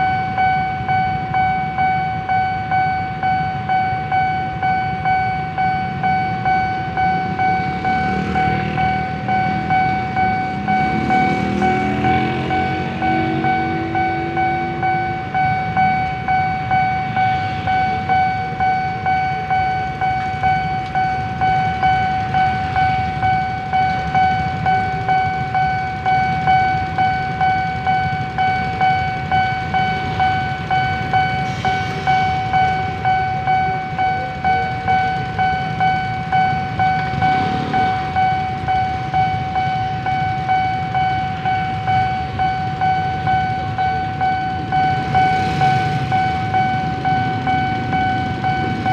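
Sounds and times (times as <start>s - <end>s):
level crossing alarm tone: 0.0s - 48.9s
low rumble: 43.6s - 48.9s.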